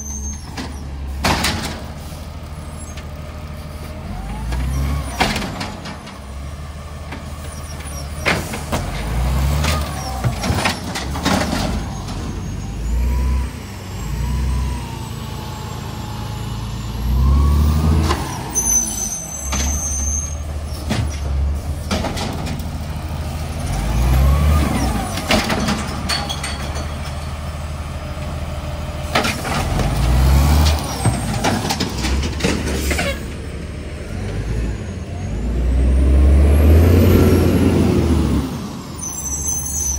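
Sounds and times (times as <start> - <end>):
diesel engine surging: 0.0 - 39.9
metal clanks: 25.1 - 27.4.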